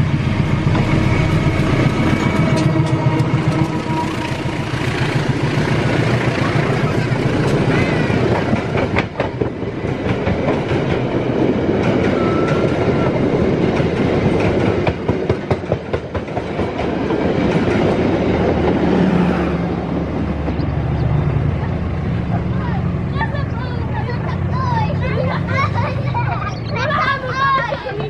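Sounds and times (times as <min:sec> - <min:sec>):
train coaches rolling past: 0:00.0 - 0:28.0
wheels clacking over rail joints: 0:00.5 - 0:19.3.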